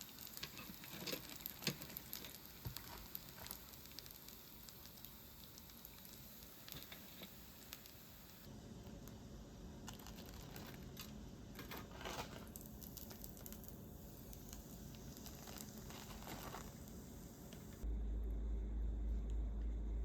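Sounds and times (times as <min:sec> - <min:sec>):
rustling and crinkling: 0:00.0 - 0:04.1, 0:09.9 - 0:13.6, 0:14.9 - 0:17.8.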